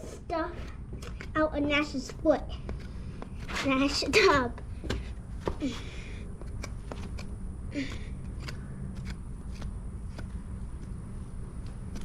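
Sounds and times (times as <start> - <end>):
hoof pick scraping hoof: 0.0 - 4.4.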